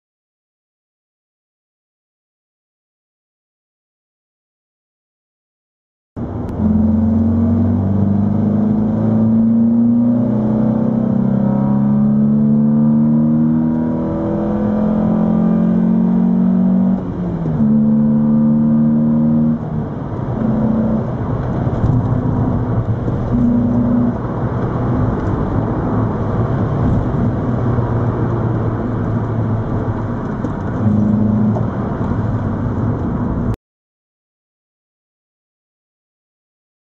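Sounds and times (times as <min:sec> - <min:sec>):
car engine accelerating hard: 0:06.2 - 0:33.6.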